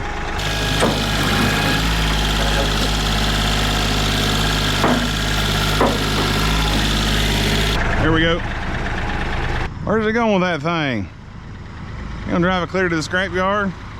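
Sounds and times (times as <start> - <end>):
tractor engine running: 0.4 - 8.0.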